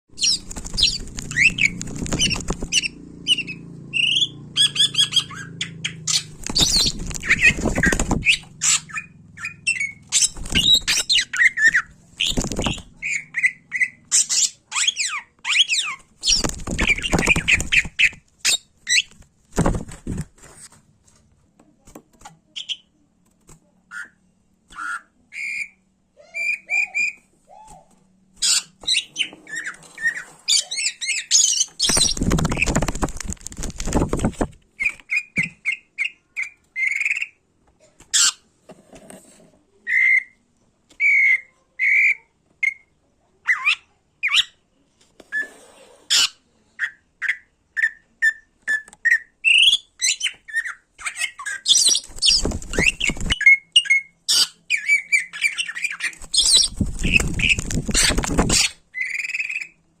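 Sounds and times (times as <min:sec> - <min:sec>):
bird whistles and squawks: 0:00.2 - 0:19.1, 0:23.9 - 0:32.7, 0:45.3 - 0:59.8.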